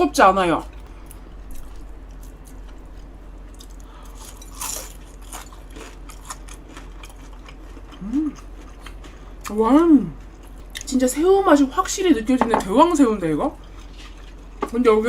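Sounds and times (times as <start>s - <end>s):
crunchy chewing: 0.7s - 11.0s, 13.5s - 14.7s
person humming: 8.0s - 8.4s.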